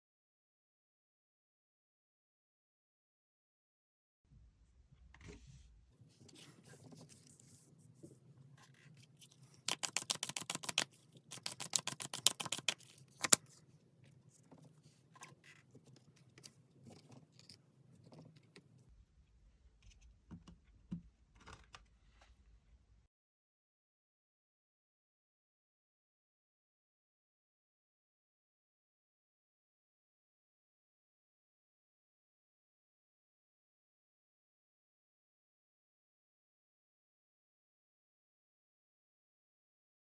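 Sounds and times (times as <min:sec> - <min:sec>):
card rustles and taps: 0:09.3 - 0:13.5
cards shuffling with flicking clicks: 0:09.5 - 0:13.4
card snap: 0:09.7 - 0:13.4.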